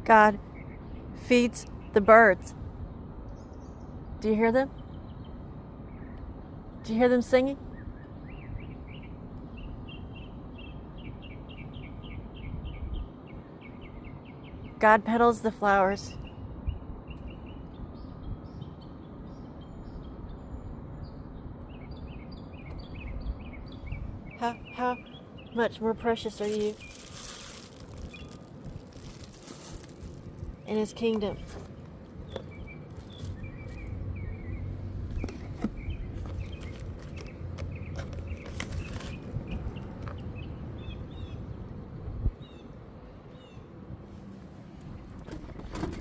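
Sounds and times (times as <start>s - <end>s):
birds chirping and singing: 16.1s - 41.4s
steady low rumble: 16.1s - 45.3s.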